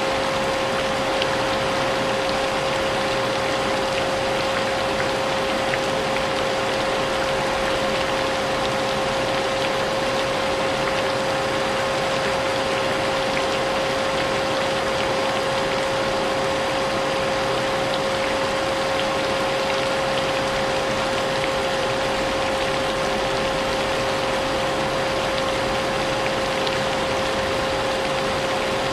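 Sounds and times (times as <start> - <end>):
vacuum cleaner running: 0.0 - 0.2
rain: 0.0 - 28.9.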